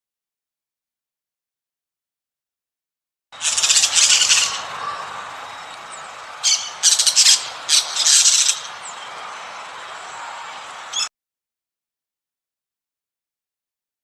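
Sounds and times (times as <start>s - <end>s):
harsh bird squawks: 3.4s - 5.7s, 6.4s - 8.9s.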